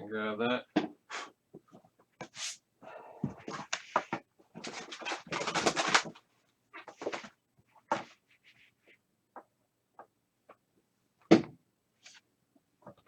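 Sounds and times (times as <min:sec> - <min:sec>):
packaging rustling and scraping: 0:03.5 - 0:06.2.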